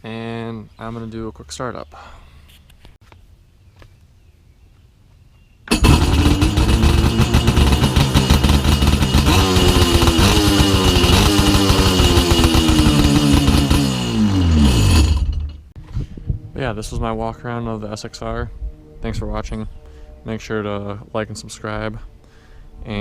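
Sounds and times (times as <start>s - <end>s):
jet ski engine revving: 5.7s - 15.5s.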